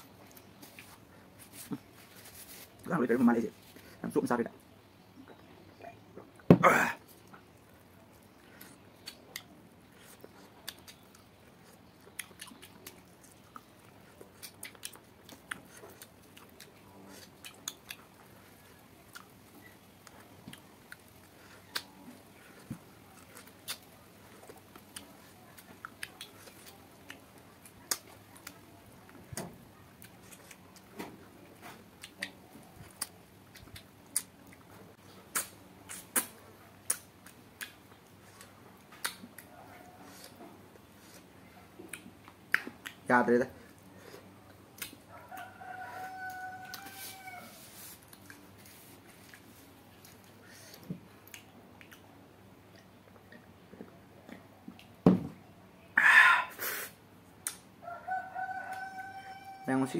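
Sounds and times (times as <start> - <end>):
chewing with wet lip smacks: 7.4 - 31.0, 32.0 - 43.1, 49.2 - 55.0.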